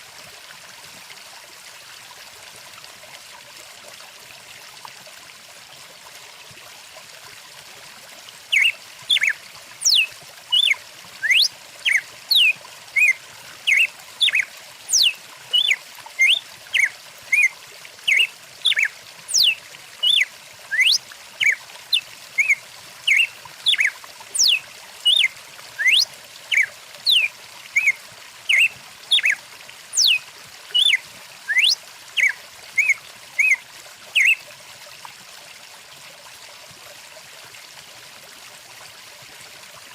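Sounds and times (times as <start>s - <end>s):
stream running: 0.0s - 39.9s
bird chirping and whistling: 8.5s - 17.5s, 18.1s - 21.6s, 22.4s - 29.4s, 30.0s - 30.2s, 30.8s - 33.6s, 34.2s - 34.4s.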